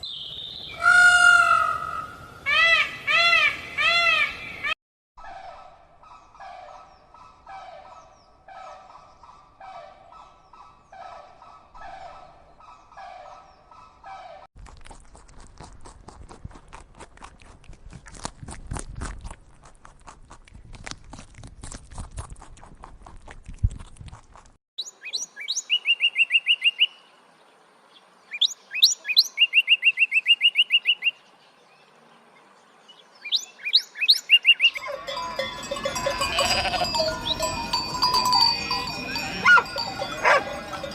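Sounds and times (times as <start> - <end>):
repeated bird call: 24.8 - 27.1, 28.3 - 31.2, 33.2 - 35.4
songbird chirps and trills: 24.8 - 40.9.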